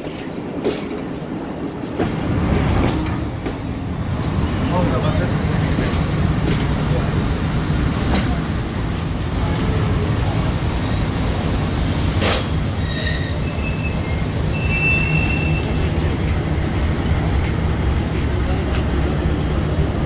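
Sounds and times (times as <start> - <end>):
train rumbling: 0.0 - 20.0
high-pitched squeals: 12.4 - 16.4.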